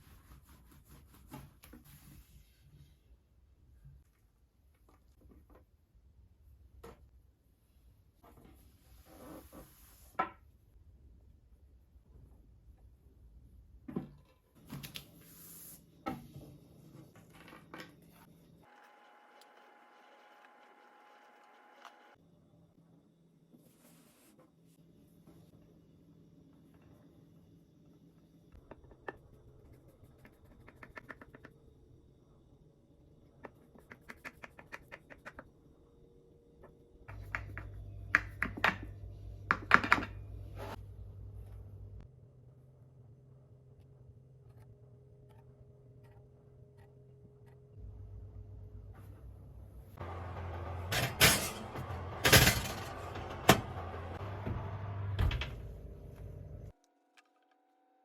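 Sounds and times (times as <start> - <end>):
low electric hum: 40.1 - 56.7
utensils and dishes clinking: 50.9 - 53.7.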